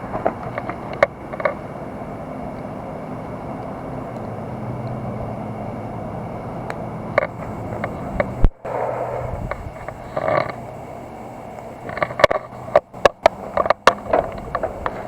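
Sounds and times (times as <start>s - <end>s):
road noise: 0.0s - 15.0s
vehicle engine running: 1.2s - 15.0s
sharp clicks: 6.7s - 15.0s.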